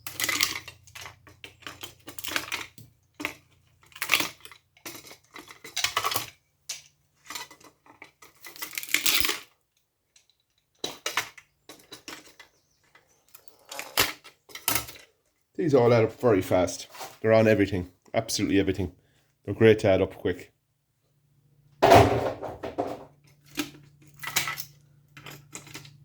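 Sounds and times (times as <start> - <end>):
metal parts clinking: 0.0 - 15.1, 22.8 - 26.0.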